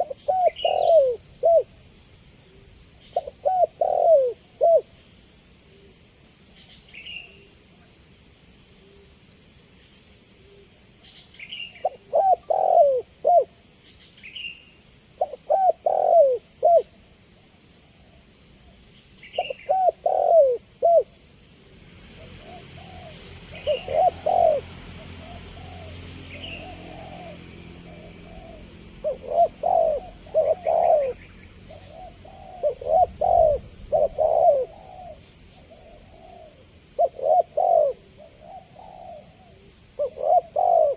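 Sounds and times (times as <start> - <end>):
dove cooing: 0.0 - 1.8, 3.1 - 5.0, 11.8 - 13.5, 15.2 - 16.9, 19.4 - 21.2, 22.2 - 40.9
small birds chirping: 0.0 - 7.6, 9.7 - 16.9, 18.7 - 40.9
steady high hiss: 0.0 - 40.0.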